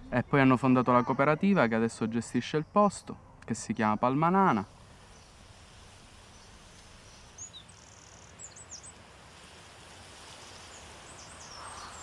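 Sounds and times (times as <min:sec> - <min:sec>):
faint steady hiss: 0:00.0 - 0:12.0
small bird chirping: 0:06.2 - 0:09.0, 0:10.4 - 0:12.0.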